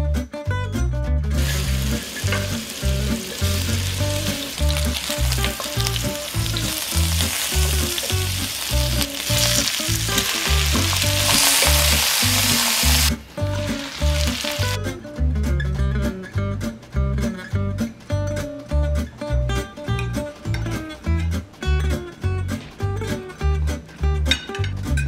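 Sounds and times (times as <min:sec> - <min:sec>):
background music with bass: 0:00.0 - 0:25.0
meat sizzling in a frying pan: 0:01.3 - 0:14.8.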